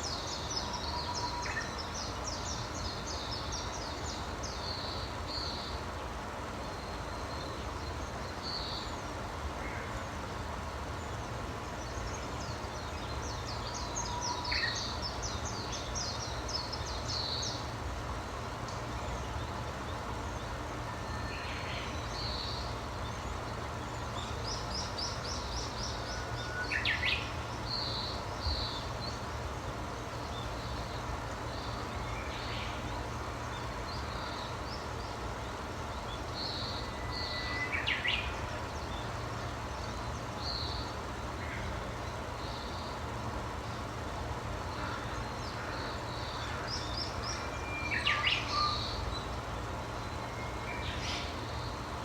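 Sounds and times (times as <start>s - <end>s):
songbirds singing and chirping: 0.0s - 52.0s.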